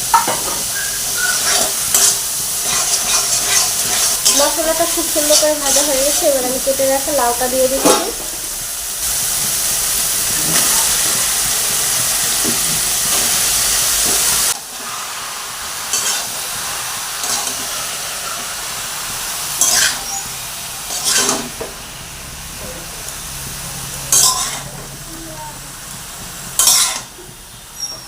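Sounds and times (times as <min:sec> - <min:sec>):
vegetables sizzling in hot oil: 0:00.0 - 0:28.0
spatula scraping a pan: 0:00.2 - 0:06.8, 0:15.9 - 0:16.4, 0:17.2 - 0:18.6, 0:19.6 - 0:20.3, 0:20.9 - 0:21.6, 0:24.0 - 0:24.8, 0:26.6 - 0:27.2.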